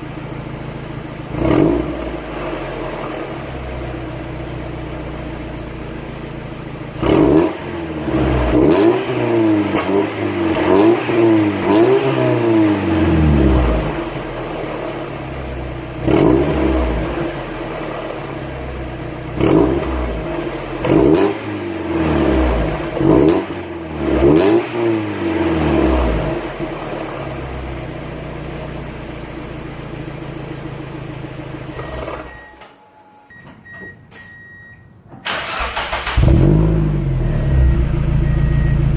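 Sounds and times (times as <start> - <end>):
car engine idling: 0.0 - 8.6, 25.7 - 32.4, 35.2 - 38.9
engine revving: 1.3 - 3.3, 7.0 - 14.9, 16.0 - 18.1, 19.3 - 27.2, 35.3 - 38.9.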